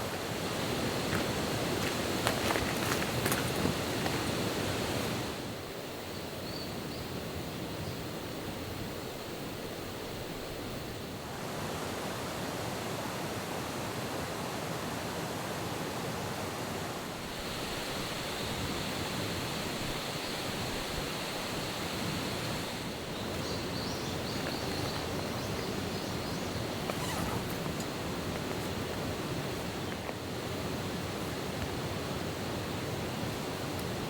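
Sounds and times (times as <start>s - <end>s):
steady outdoor rushing noise: 0.0s - 6.0s, 16.8s - 34.0s.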